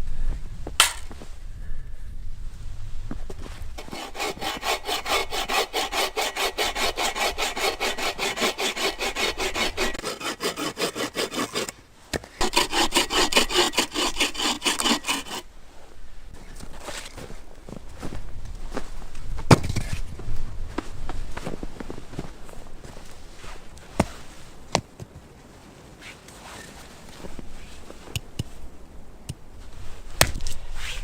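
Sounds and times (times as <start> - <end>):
hand saw cutting wood: 3.8 - 11.8, 12.4 - 15.5.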